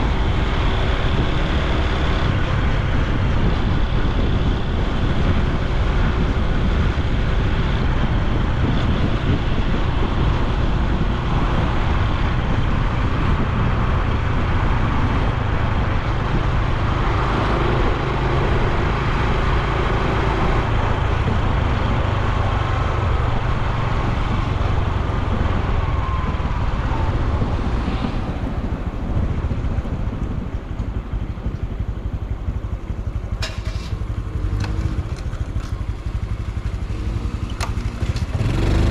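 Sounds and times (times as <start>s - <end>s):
motorcycle engine while riding: 0.0s - 38.9s
road noise: 0.0s - 38.9s
wind noise: 0.0s - 38.9s.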